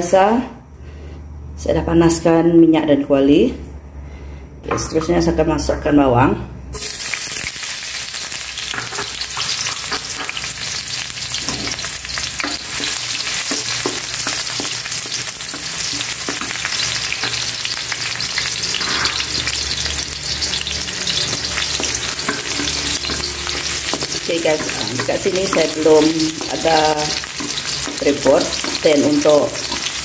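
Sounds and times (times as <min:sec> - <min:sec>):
shallots sizzling in hot oil: 0:06.8 - 0:30.0
wooden spatula scraping a pan: 0:18.7 - 0:19.6.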